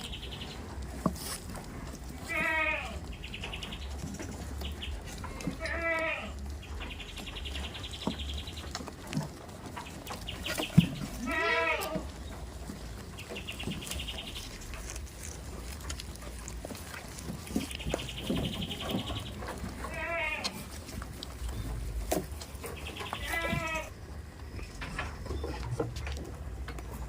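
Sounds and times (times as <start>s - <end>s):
goats bleating: 2.2s - 3.1s, 5.2s - 6.5s, 11.1s - 12.2s, 19.7s - 20.7s, 23.0s - 24.0s.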